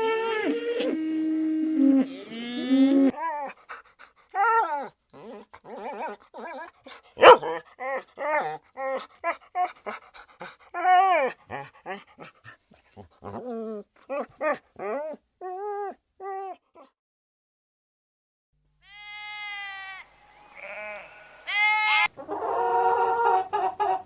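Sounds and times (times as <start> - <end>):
dog whimpering and yipping: 3.1 - 3.7, 4.4 - 10.0, 10.7 - 12.3, 13.0 - 16.9
dog yelping: 4.4 - 10.0.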